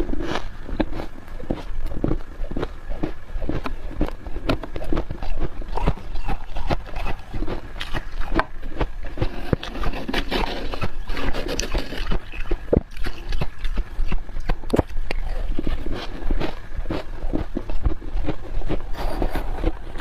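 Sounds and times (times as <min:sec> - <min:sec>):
spoon digging frost: 0:00.0 - 0:20.0
squeaky crunches of chewing: 0:00.0 - 0:20.0.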